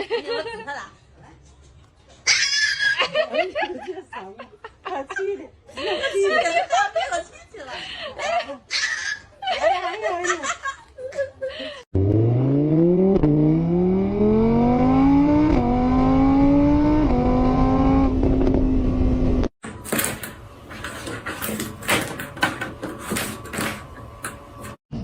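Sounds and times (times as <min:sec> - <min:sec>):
engine accelerating with gear changes: 0:12.0 - 0:19.5.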